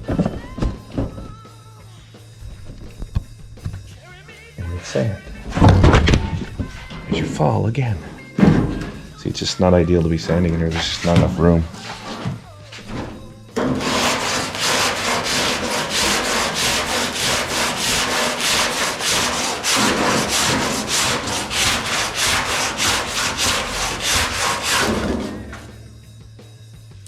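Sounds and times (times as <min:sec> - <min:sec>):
sandpaper on metal: 0:13.6 - 0:25.7.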